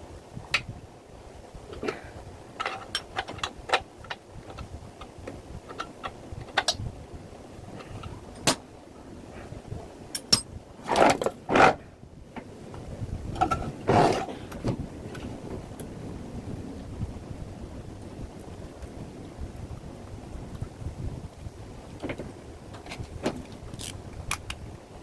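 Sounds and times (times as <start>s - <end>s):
metal tools being handled: 10.2s - 10.5s.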